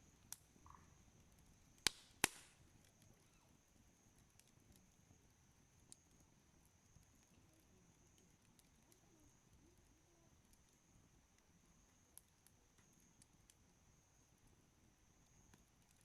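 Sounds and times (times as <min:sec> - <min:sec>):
campfire crackling: 0:00.0 - 0:16.0
loud fire pop: 0:01.8 - 0:02.6.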